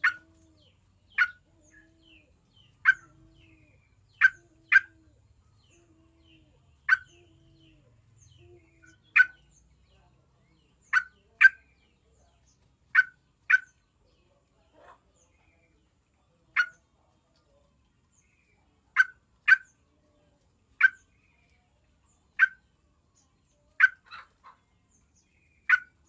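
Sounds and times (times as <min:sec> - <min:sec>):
bird giving sharp call notes: 0:01.1 - 0:02.2, 0:02.8 - 0:05.1, 0:06.9 - 0:07.7.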